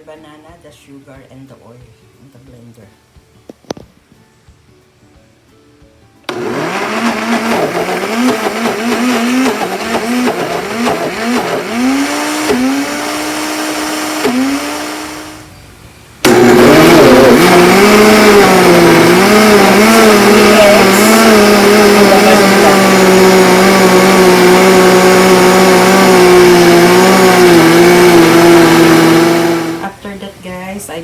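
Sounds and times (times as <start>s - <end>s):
blender motor: 6.3s - 15.5s, 16.2s - 29.9s.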